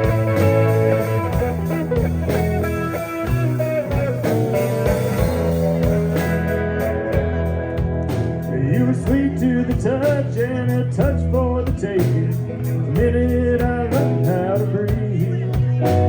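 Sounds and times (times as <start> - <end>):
drum beat: 0.0 - 8.5
pitch-bending melody line: 0.0 - 10.0
bass line: 0.0 - 16.0
guitar: 0.0 - 16.0.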